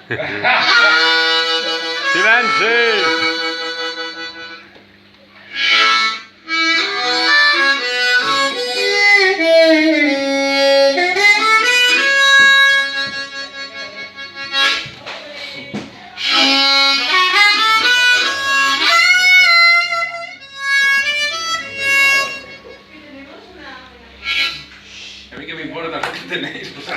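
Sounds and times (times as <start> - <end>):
blues harmonica solo: 0.5 - 15.0, 16.2 - 23.2, 24.2 - 25.3
short breaths: 24.7 - 25.3.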